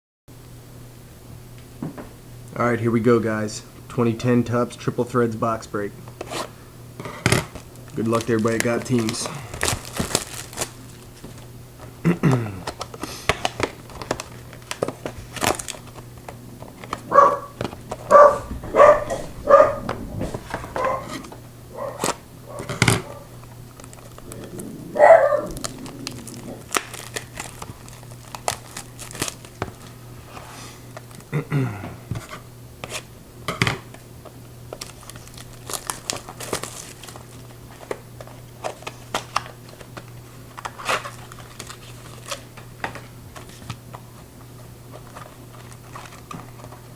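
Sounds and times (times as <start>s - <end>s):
plastic wrapping crinkling and tearing: 7.2s - 24.7s, 25.3s - 30.0s, 31.0s - 31.3s, 33.9s - 46.9s.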